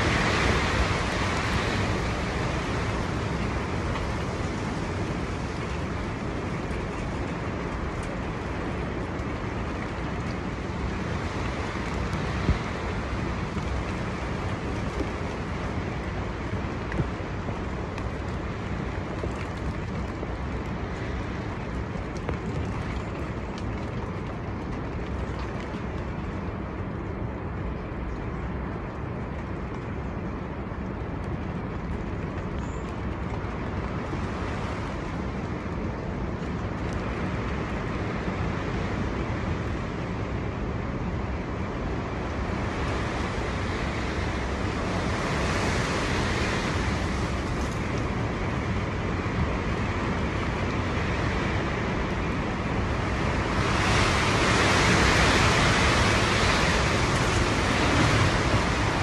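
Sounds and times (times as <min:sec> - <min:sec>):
wind buffeting microphone: 0:00.0 - 0:59.0
storm wind gusting: 0:33.5 - 0:59.0.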